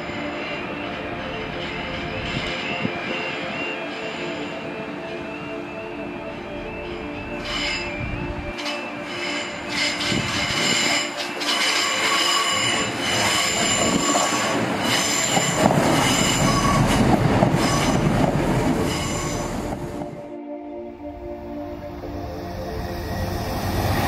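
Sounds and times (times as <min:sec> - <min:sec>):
train rumble and clatter: 0:00.0 - 0:20.3, 0:21.7 - 0:24.0
train wheels squealing: 0:06.6 - 0:18.1, 0:18.7 - 0:19.6.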